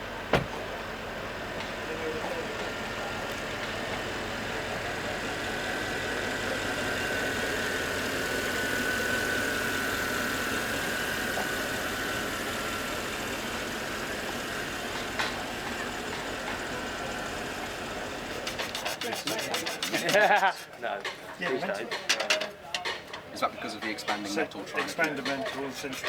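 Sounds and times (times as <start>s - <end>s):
machine whining: 2.2s - 19.1s.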